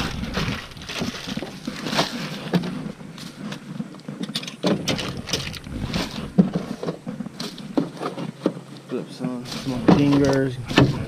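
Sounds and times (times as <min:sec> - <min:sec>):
fishing tackle being handled: 0:00.5 - 0:08.6.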